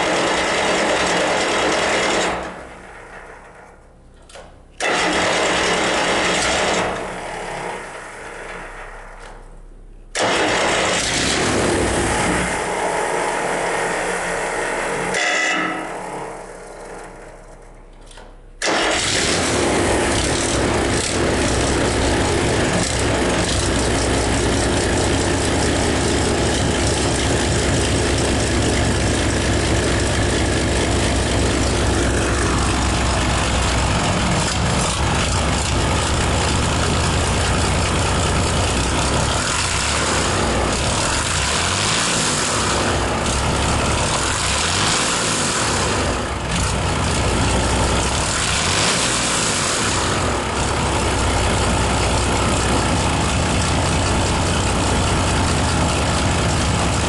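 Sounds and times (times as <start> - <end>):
diesel engine starting and running: 0.0 - 57.0.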